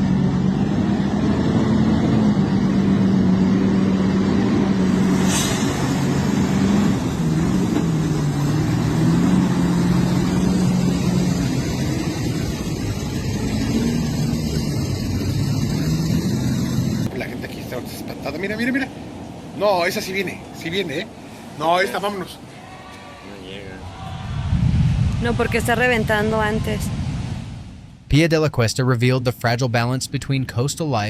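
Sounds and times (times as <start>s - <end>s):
engine running steadily: 0.0s - 22.0s
brief sharp sound: 5.1s - 6.2s.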